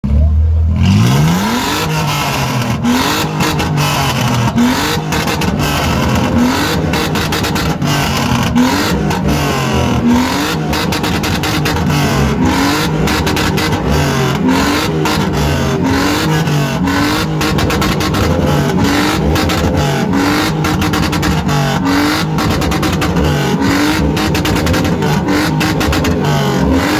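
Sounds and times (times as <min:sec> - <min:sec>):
car engine revving in blips: 0:00.0 - 0:26.9
engine crackles: 0:00.0 - 0:26.9.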